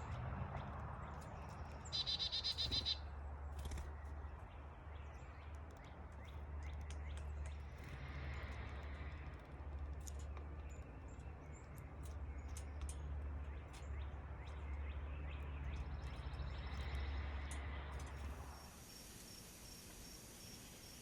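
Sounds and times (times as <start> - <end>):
small birds chirping: 0.0 - 21.0
steady high hiss: 18.6 - 21.0.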